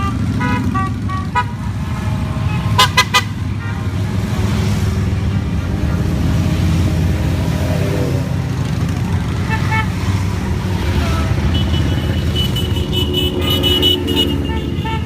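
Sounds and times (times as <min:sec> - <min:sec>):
horn tooting: 0:00.0 - 0:04.0, 0:09.3 - 0:15.0
motorcycles rumbling past: 0:03.8 - 0:15.0.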